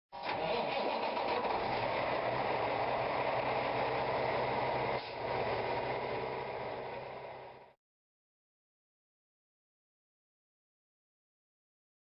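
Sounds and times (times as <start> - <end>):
truck engine: 0.1 - 7.8
road noise: 0.2 - 7.8.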